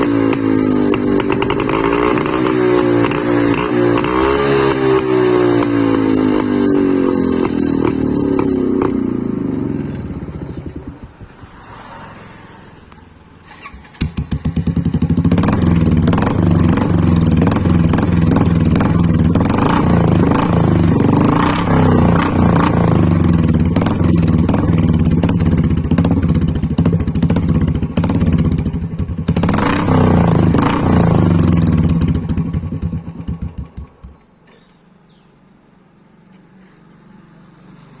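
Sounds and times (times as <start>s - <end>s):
motorcycle engine passing away: 0.0s - 35.2s
motorcycle engine idling: 6.4s - 11.5s, 13.0s - 19.4s, 22.8s - 29.5s, 31.2s - 35.4s.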